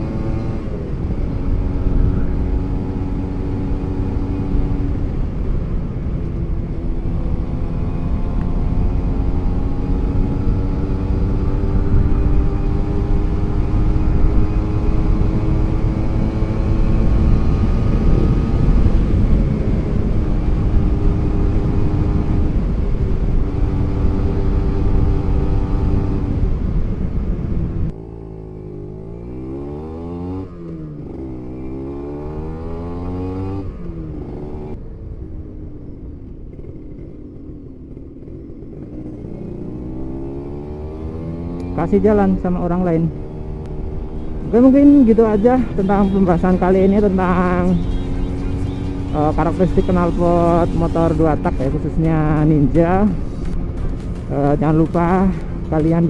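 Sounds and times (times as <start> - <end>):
wind rush on microphone: 0.0 - 28.0, 41.9 - 56.0
two-stroke motorcycle engine: 27.9 - 56.0.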